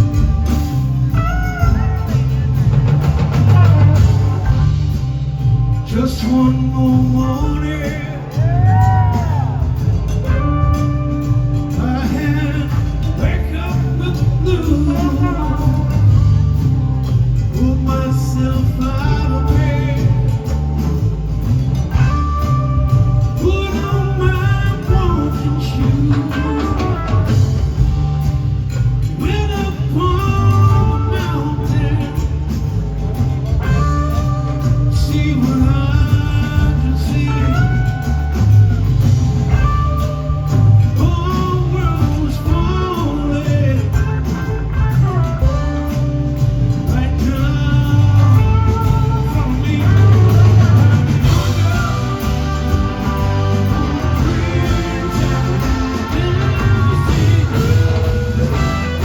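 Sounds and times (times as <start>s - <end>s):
blues-rock band playing: 0.0s - 59.0s
gliding lead guitar lines: 0.0s - 59.0s.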